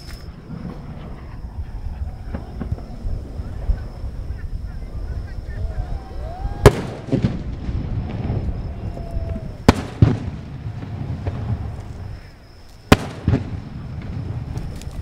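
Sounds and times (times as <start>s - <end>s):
firework shells bursting: 6.0s - 15.0s.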